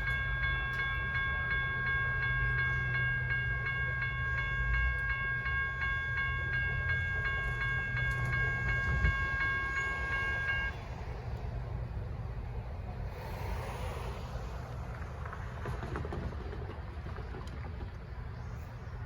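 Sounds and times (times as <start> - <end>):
crossing signal bells ringing: 0.0 - 12.5
light rail train passing: 0.0 - 19.0.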